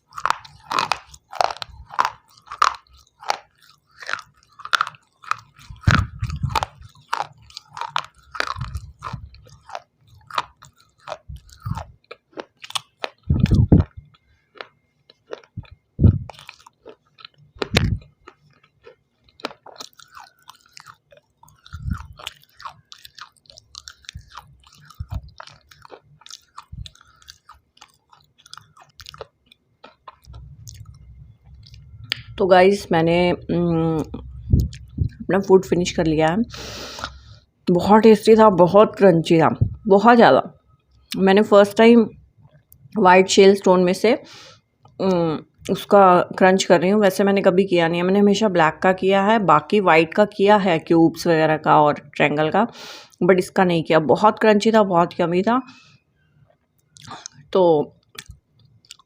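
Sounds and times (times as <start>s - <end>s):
person crunching stone with teeth: 0.0s - 32.3s.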